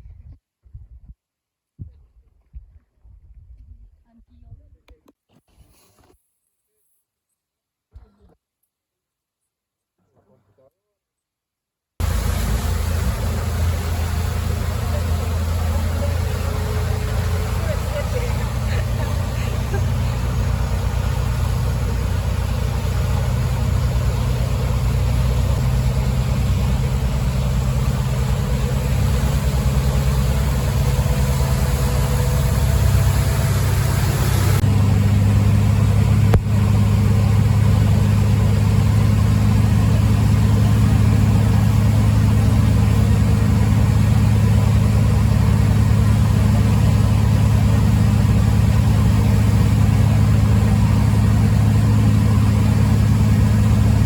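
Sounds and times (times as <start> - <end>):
boat engine droning: 12.0 - 54.0.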